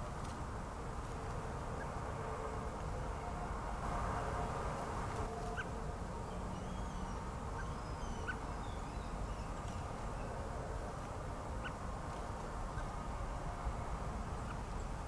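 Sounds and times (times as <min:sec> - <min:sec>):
birds calling: 0:05.5 - 0:10.3
faint bird twittering: 0:06.3 - 0:10.4.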